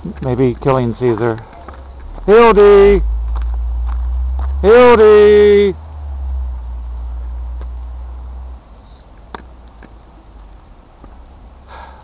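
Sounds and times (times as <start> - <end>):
low rumble on microphone: 0.0 - 8.7.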